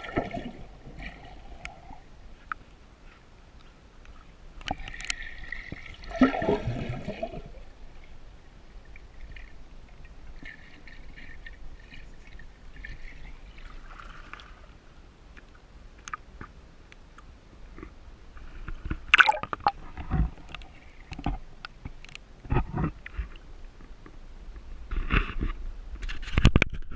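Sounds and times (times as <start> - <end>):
water splashing and gurgling: 0.0 - 2.4, 4.6 - 14.8, 18.7 - 21.6
water trickling: 19.1 - 21.2.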